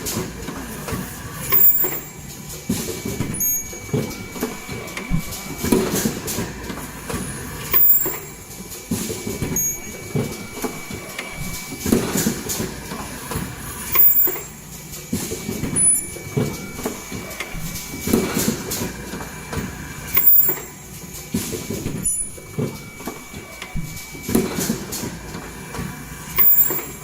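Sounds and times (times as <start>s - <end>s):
machine mechanical clatter: 0.0s - 27.0s
sharp machine clicks: 1.4s - 2.2s, 7.7s - 8.4s, 13.9s - 14.6s, 20.1s - 20.8s, 26.4s - 27.0s
steady high-pitched tone: 1.4s - 2.2s, 3.0s - 8.7s, 9.4s - 14.7s, 15.4s - 20.9s.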